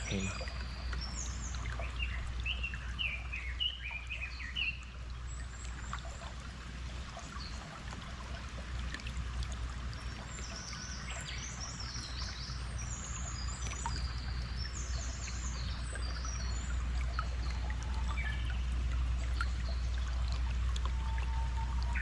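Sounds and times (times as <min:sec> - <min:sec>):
low hum: 0:00.0 - 0:22.0
stream flowing: 0:00.0 - 0:22.0
birds chirping and trilling: 0:21.1 - 0:22.0.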